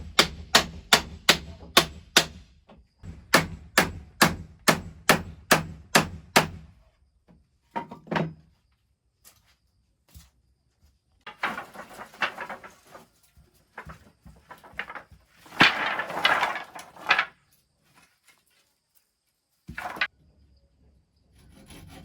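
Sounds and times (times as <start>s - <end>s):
sharp wooden knocks: 0.0s - 6.7s
wood scraping and rubbing: 11.3s - 13.1s, 14.5s - 17.4s.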